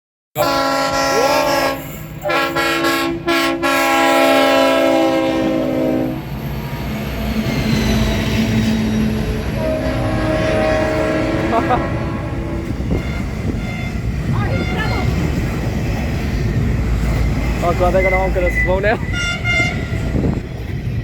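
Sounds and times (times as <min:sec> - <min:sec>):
multi-tone train horn blasts: 0:00.4 - 0:06.3, 0:09.2 - 0:15.9, 0:17.9 - 0:20.4
train rumbling past: 0:00.4 - 0:21.0.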